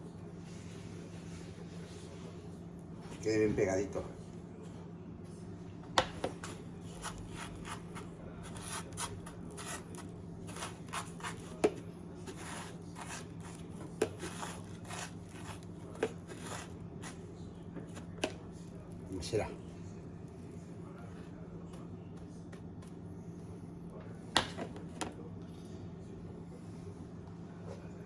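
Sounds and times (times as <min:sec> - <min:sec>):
soft gritty scraping: 0:06.2 - 0:19.4.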